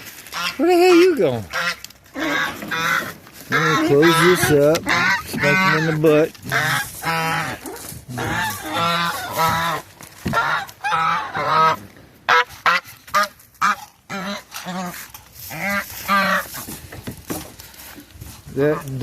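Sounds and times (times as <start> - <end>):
geese honking: 0.3 - 16.7, 18.5 - 19.0.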